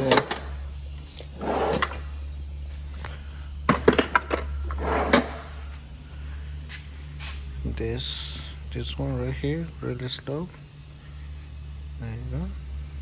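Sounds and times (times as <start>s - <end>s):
steady low hum: 0.0s - 13.0s
metal tools scraping and clinking: 3.7s - 5.6s.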